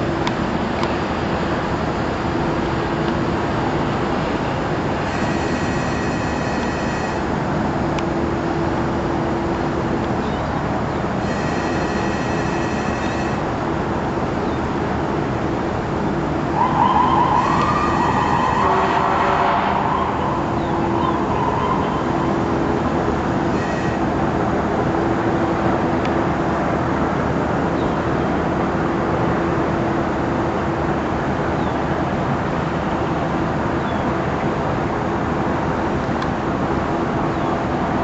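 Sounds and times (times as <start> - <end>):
powerboat engines running: 0.0 - 38.0
wind: 0.0 - 38.0
wavering siren-like tone: 5.0 - 7.3, 11.2 - 13.5, 16.6 - 24.1.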